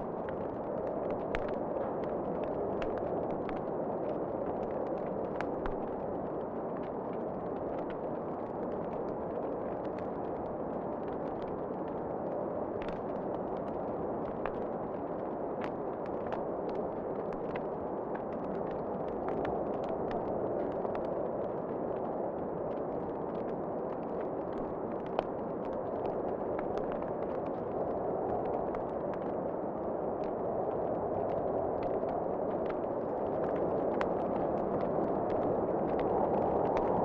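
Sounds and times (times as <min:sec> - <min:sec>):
wood fire crackling and popping: 0:30.2 - 0:37.0.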